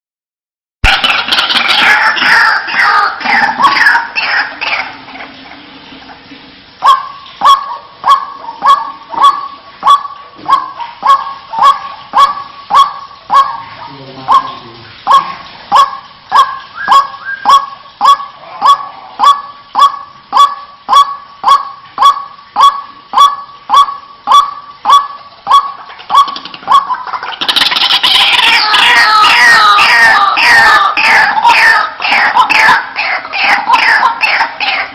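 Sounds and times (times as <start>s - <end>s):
waterhen calling wak notes: 0.8s - 34.9s.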